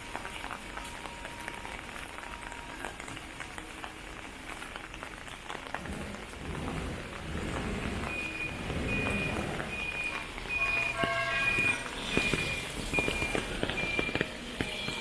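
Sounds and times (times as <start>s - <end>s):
rain falling: 0.0s - 15.0s
low rumble: 5.7s - 10.2s.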